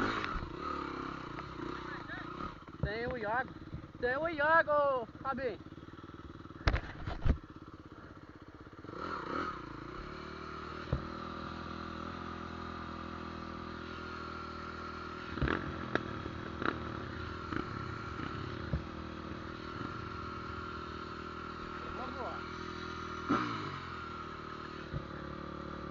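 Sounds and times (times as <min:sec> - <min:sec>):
engine drone: 0:00.0 - 0:25.9.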